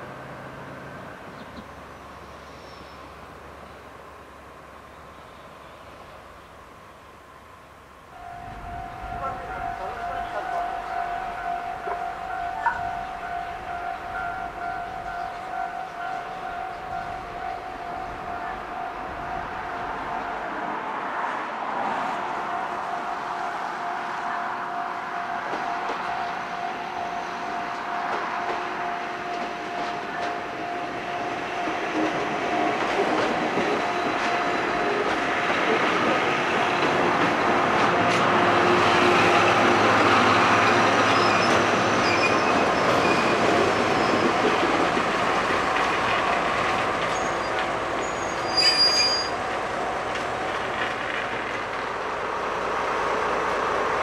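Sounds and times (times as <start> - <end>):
train wheels rumbling over rails: 0.0 - 54.0
high-pitched squeal: 38.7 - 44.5, 47.0 - 49.5.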